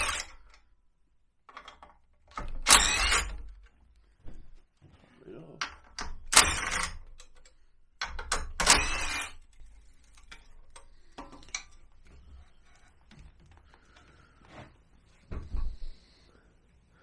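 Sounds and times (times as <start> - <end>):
tools clattering on metal bolts: 0.0 - 0.6, 1.5 - 3.7, 5.6 - 13.1.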